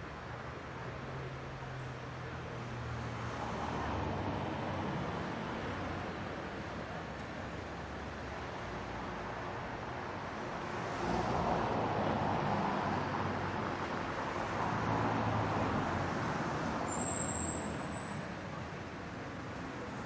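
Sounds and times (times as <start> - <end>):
passing cars: 0.0 - 20.0
brakes squealing: 16.8 - 18.4.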